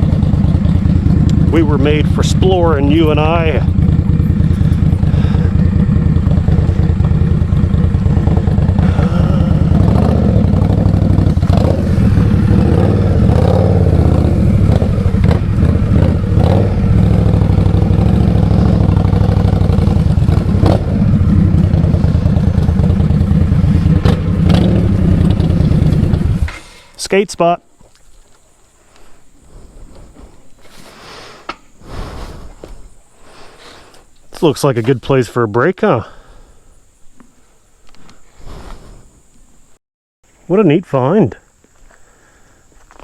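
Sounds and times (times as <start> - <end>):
motorcycle engine running: 0.0 - 26.6.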